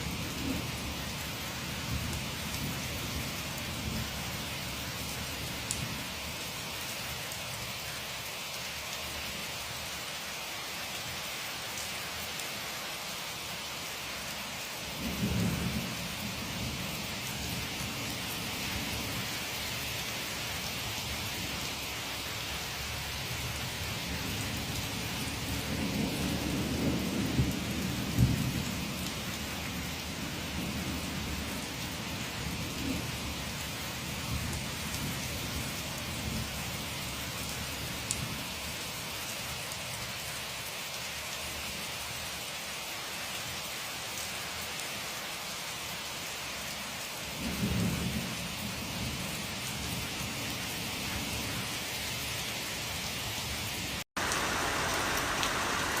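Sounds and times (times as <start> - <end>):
rain hissing: 52.5 - 56.0
thunder rumbling: 54.2 - 56.0.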